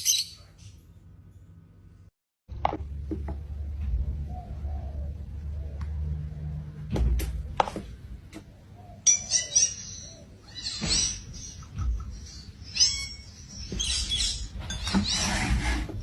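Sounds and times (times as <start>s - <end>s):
parrot chirping and squawking: 0.0s - 0.7s, 9.0s - 14.6s.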